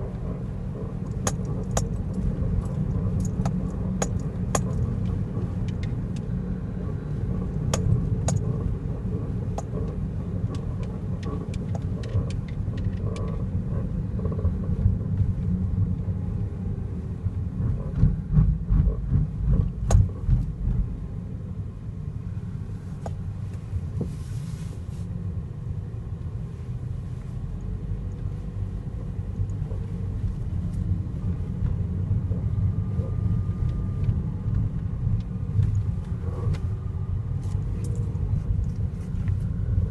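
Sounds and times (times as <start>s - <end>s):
car road rumble: 0.0s - 39.9s
sharp clicks and knocks: 0.2s - 6.3s, 7.6s - 15.2s, 17.6s - 20.8s.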